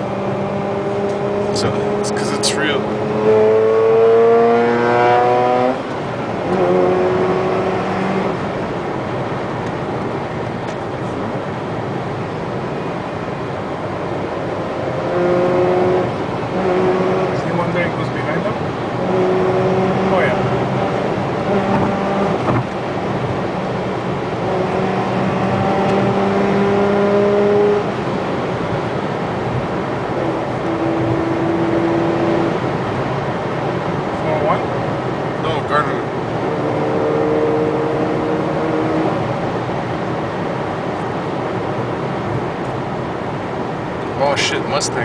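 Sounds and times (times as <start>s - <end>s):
car engine revving: 0.0s - 45.0s
road noise: 0.0s - 45.0s.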